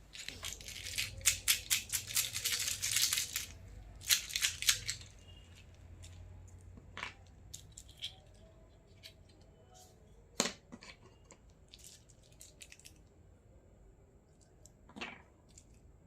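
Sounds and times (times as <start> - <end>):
plastic toy pieces clicking: 0.1 - 6.2, 7.1 - 9.4.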